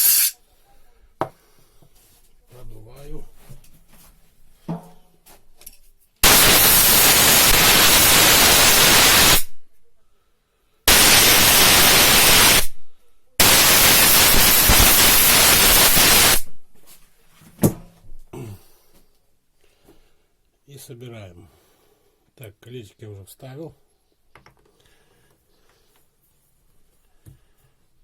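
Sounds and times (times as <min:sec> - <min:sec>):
compressed air bursts: 0:00.0 - 0:00.4, 0:06.2 - 0:09.6, 0:10.9 - 0:12.8, 0:13.4 - 0:16.5.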